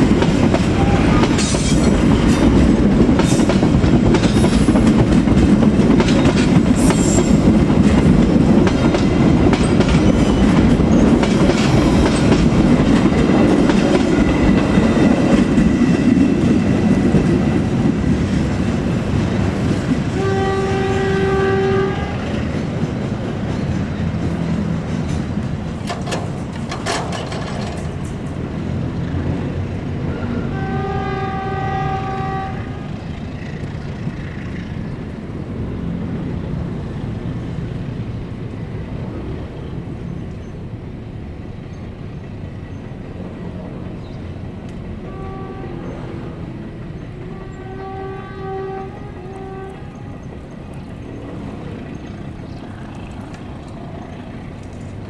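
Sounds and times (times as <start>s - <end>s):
train wheels clattering over rails: 0.0s - 20.4s, 22.3s - 28.8s
locomotive horn blasts: 0.7s - 1.6s, 20.1s - 22.4s, 30.1s - 33.0s, 45.0s - 46.4s, 47.2s - 50.1s.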